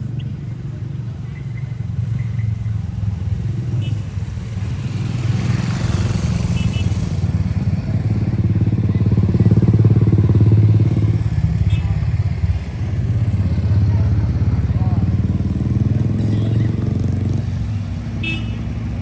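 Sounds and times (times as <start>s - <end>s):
motorbike engine running: 4.0s - 19.0s.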